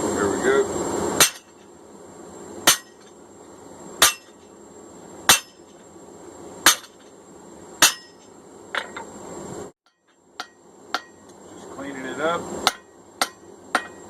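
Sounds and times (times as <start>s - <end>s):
background hiss: 0.0s - 14.0s
hammer striking metal on anvil: 1.2s - 1.6s, 2.7s - 3.1s, 4.0s - 4.4s, 5.3s - 5.7s, 6.6s - 7.0s, 7.8s - 9.0s, 9.9s - 11.3s, 12.6s - 14.0s.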